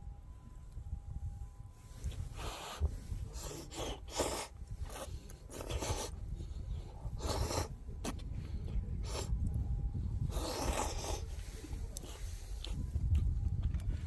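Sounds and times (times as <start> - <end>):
low fire rumble: 0.0 - 14.0
campfire crackling and hissing: 1.9 - 13.1.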